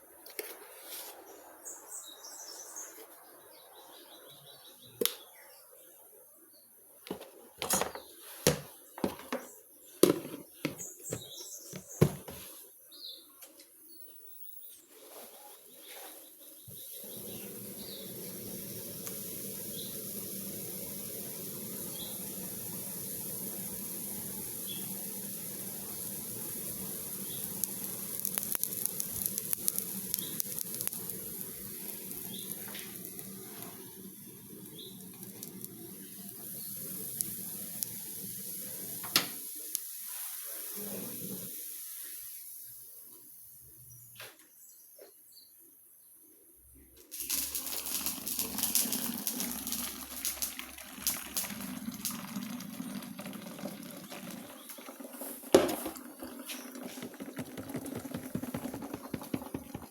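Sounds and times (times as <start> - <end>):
birds chirping: 1.3 - 39.0
food frying in a pan: 16.5 - 43.4, 47.1 - 59.9.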